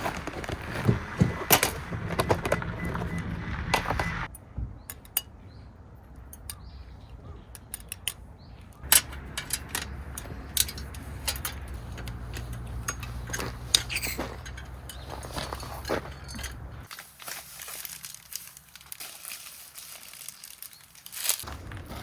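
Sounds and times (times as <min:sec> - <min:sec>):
bird chirps: 0:01.3 - 0:16.9
utensils clinking: 0:06.2 - 0:22.0.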